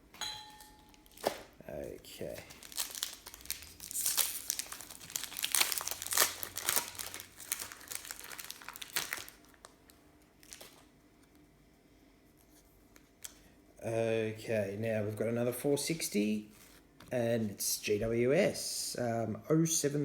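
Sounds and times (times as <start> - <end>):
plastic wrappers crinkling: 0.9 - 11.3
plastic tearing: 2.2 - 10.9.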